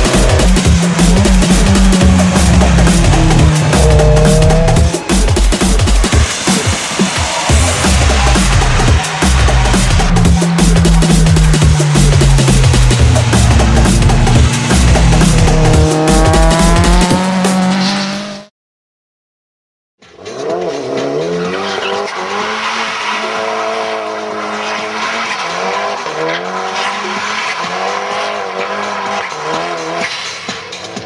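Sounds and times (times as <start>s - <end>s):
music with heavy drum beat: 0.0s - 17.8s, 28.4s - 31.0s
car engine revving: 0.0s - 18.5s, 20.1s - 31.0s
tyres hissing on wet track: 5.0s - 9.9s.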